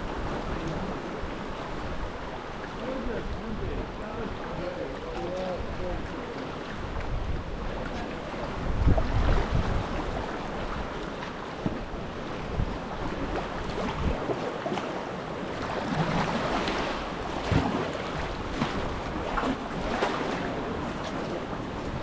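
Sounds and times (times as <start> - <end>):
wind buffeting microphone: 0.0 - 14.6
water splashes: 0.0 - 22.0.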